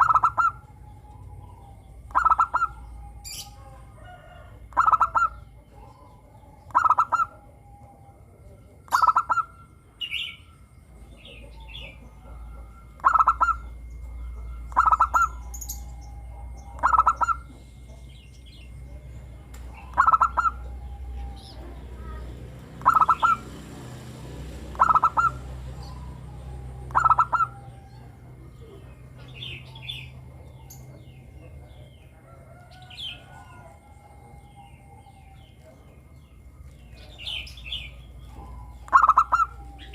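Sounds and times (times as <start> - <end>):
dove cooing: 0.0 - 39.9
small birds chirping: 0.0 - 39.9.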